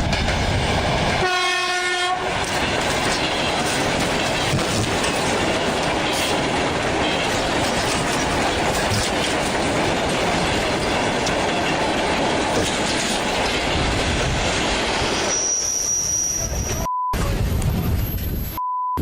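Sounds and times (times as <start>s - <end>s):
train wheels on rails: 0.0s - 18.3s
wheel squeal: 15.2s - 16.8s
short beep: 16.3s - 17.3s, 18.0s - 19.0s.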